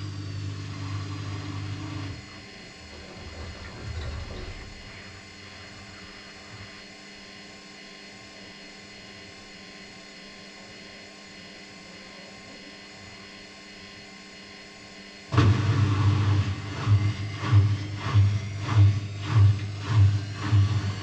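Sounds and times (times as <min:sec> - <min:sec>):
washing machine humming: 0:00.0 - 0:07.0, 0:15.3 - 0:21.0
loud deep sound: 0:15.3 - 0:21.0.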